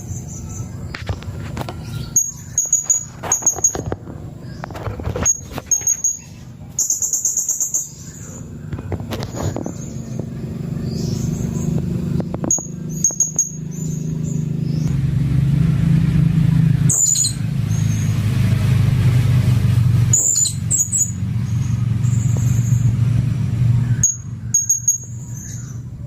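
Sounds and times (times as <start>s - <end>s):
steady low hum: 0.0s - 26.0s
parrot high-pitched calls: 16.9s - 18.0s.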